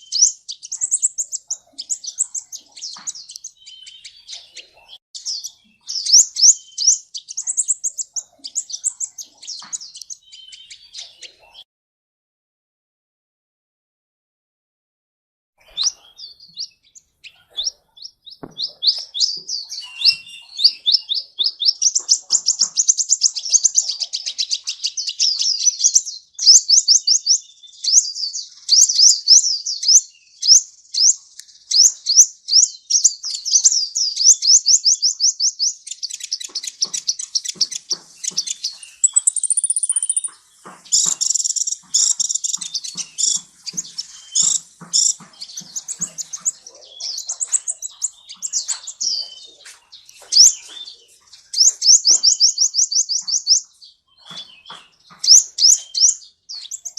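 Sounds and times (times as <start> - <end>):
sunbird singing: 0.0 - 11.6, 15.6 - 56.9
high bird whistle: 18.5 - 21.1, 38.3 - 40.3.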